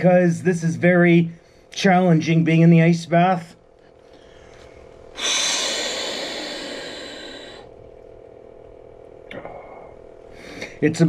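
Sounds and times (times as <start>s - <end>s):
man exhaling forcefully: 5.2s - 7.7s.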